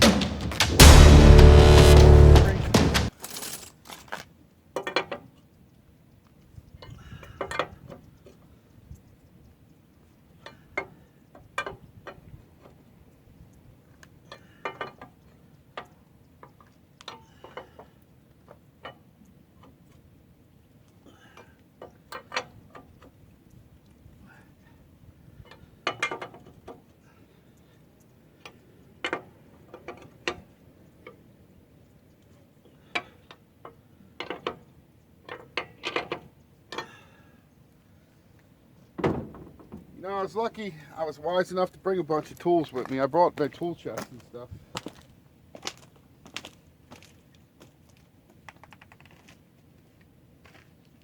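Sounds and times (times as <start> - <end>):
metallic clicks and clinks: 3.1 - 4.2.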